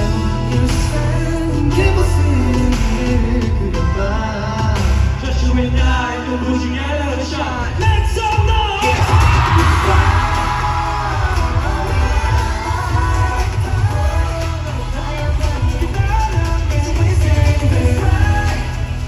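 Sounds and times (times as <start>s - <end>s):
amplified pop backing track: 0.0s - 19.0s
group singing live: 0.0s - 19.0s
crowd screaming and cheering: 7.5s - 19.0s.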